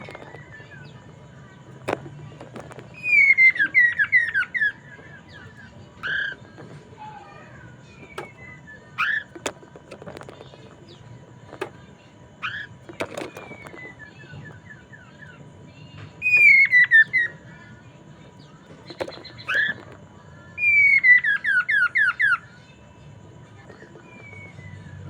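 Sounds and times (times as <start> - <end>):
bird whistling falling notes: 2.9 - 6.4, 16.2 - 17.4.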